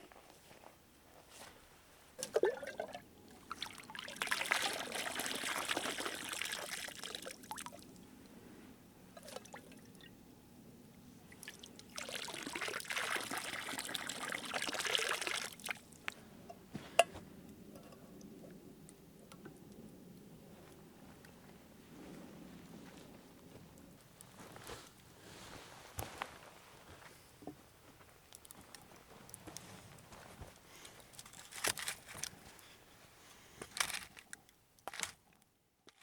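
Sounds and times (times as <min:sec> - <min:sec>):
water pouring: 0:02.2 - 0:08.0, 0:09.2 - 0:10.1, 0:11.3 - 0:16.0.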